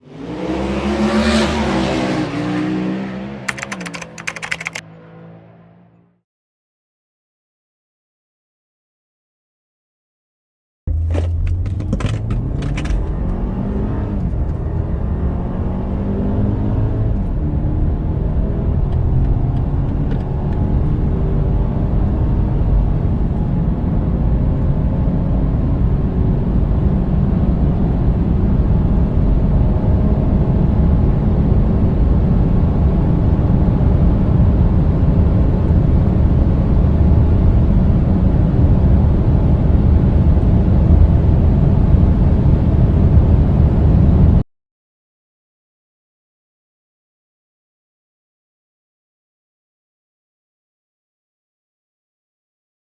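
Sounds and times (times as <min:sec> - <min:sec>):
car engine accelerating: 0:00.0 - 0:03.8, 0:10.9 - 0:44.4.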